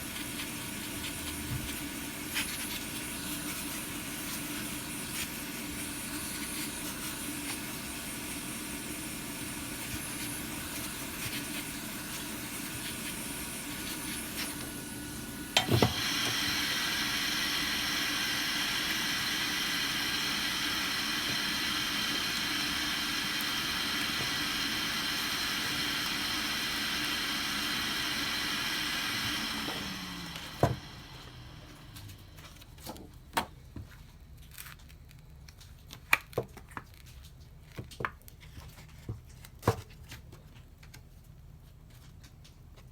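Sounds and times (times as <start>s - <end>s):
hot air gun blowing: 0.0s - 32.1s
motor winding down: 13.7s - 32.2s.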